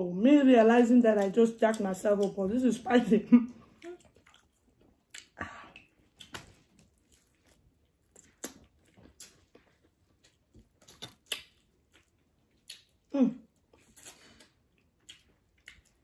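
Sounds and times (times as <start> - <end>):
chewing and mouth smacks: 3.7 - 16.0.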